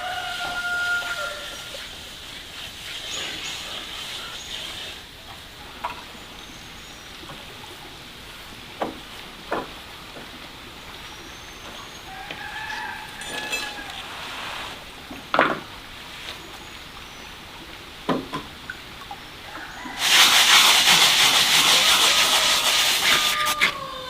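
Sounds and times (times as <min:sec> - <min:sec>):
birds or poultry calling: 0:21.3 - 0:24.0
long animal call: 0:21.7 - 0:24.0.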